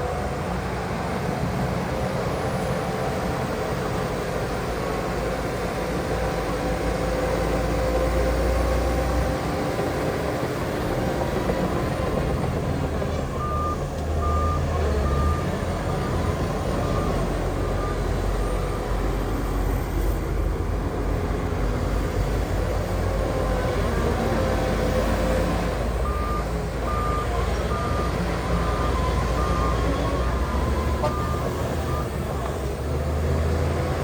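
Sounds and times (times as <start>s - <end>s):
heavy diesel engines running: 0.0s - 34.0s
reversing alarm beeping: 13.4s - 18.9s, 26.0s - 32.3s.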